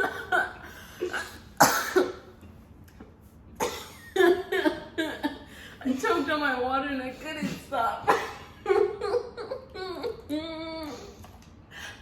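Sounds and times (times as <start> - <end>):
person coughing: 1.0 - 2.3.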